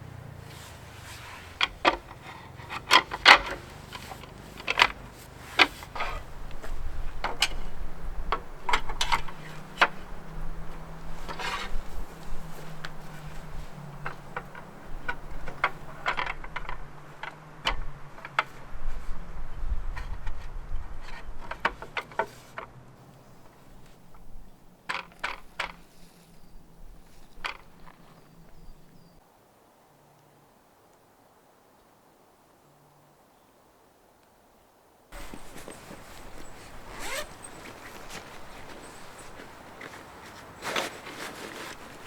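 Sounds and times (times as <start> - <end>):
irregular clicks and knocks: 0.2 - 18.6, 21.0 - 22.7, 23.5 - 25.9, 27.3 - 28.3
short scraping sounds: 0.4 - 7.7, 35.2 - 42.0.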